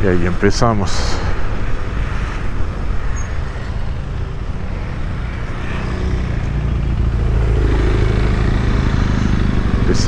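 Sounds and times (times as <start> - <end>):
road and traffic noise: 0.0 - 10.0
motorcycle engine running: 3.0 - 10.0.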